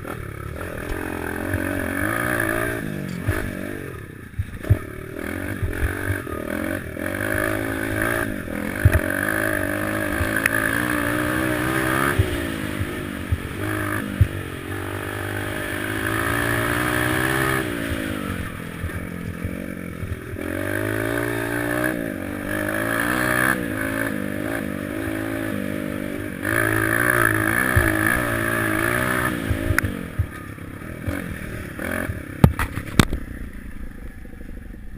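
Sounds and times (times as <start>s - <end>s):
pit bike engine revving: 0.0s - 33.6s
sharp knocks: 8.8s - 9.1s.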